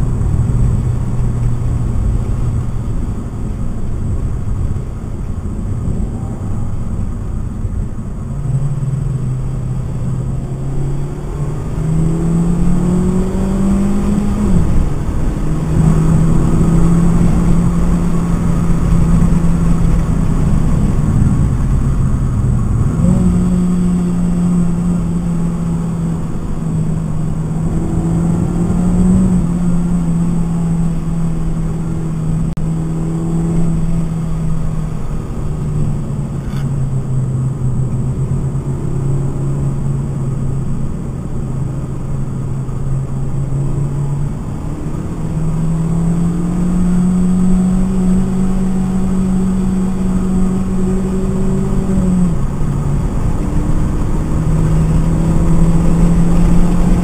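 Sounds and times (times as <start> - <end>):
car engine revving: 0.0 - 57.0
road and wind noise: 0.0 - 57.0.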